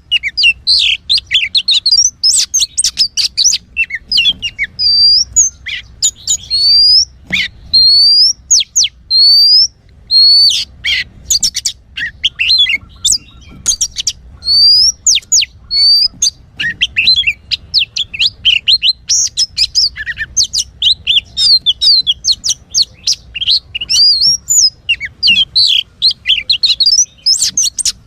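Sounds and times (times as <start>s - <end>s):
bird singing: 0.0s - 28.0s.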